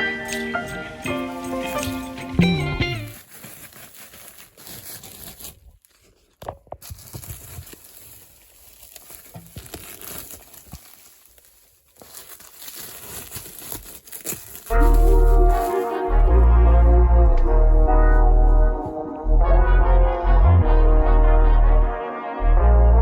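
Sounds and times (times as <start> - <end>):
upholstery material rustling: 2.6 - 16.1.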